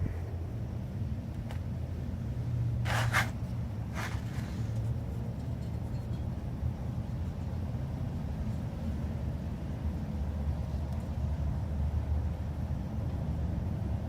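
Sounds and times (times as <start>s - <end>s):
steady low rumble: 0.0s - 7.4s.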